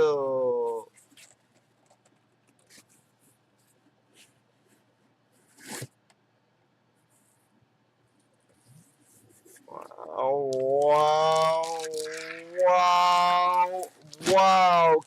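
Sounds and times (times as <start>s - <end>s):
package rustling: 9.8s - 14.9s.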